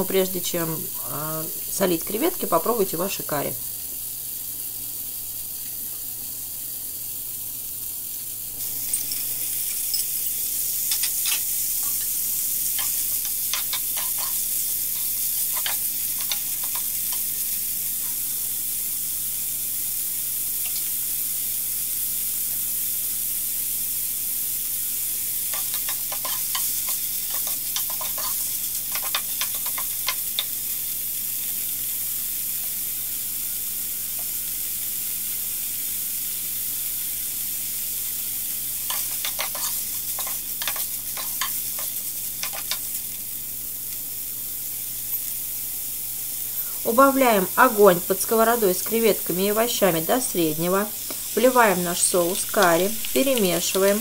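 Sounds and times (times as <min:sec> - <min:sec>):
prawns sizzling in oil: 0:00.0 - 0:54.0
utensil tapping and scraping pan: 0:12.8 - 0:14.4, 0:25.5 - 0:30.5, 0:38.9 - 0:42.8.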